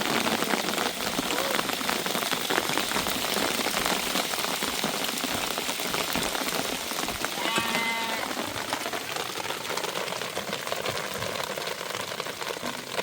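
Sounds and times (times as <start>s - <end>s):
heavy rain on a surface: 0.0s - 13.0s
sheep bleating: 7.4s - 8.4s.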